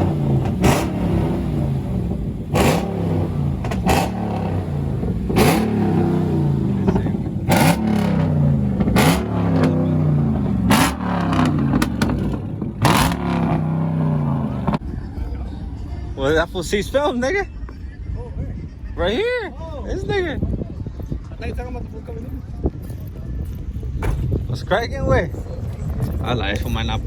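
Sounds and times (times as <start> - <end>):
engine revving: 0.0 - 14.8.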